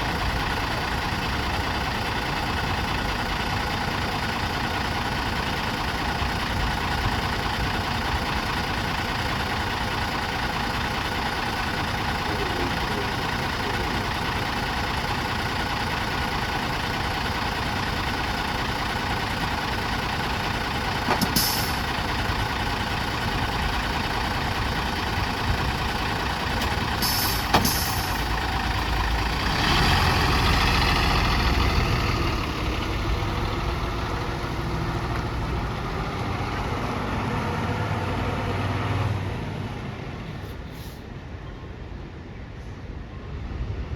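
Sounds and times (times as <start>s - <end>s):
bus engine running: 0.0s - 43.9s
air brakes hissing: 21.1s - 22.1s, 26.6s - 28.4s, 40.4s - 41.2s.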